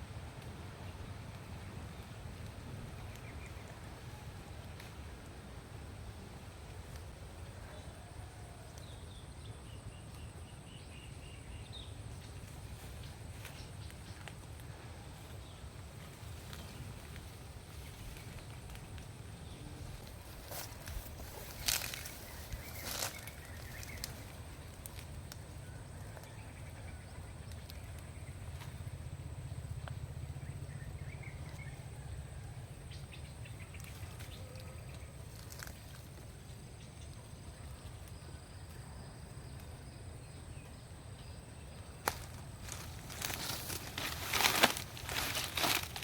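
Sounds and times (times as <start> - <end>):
steady low rumble: 11.5 - 34.0, 40.0 - 46.0
high insect drone: 15.4 - 46.0.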